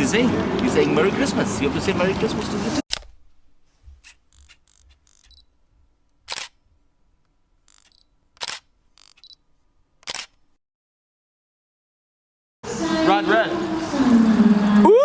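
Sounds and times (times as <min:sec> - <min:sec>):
camera shutter clicks: 0:06.3 - 0:06.6, 0:07.7 - 0:09.4, 0:10.0 - 0:10.4.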